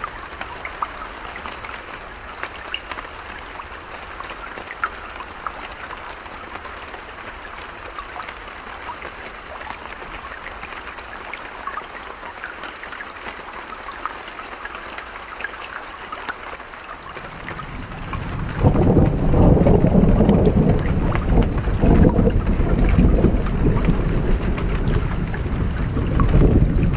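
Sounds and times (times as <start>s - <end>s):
rain drops pattering: 0.0s - 26.9s
thunder rumbling: 17.2s - 26.9s.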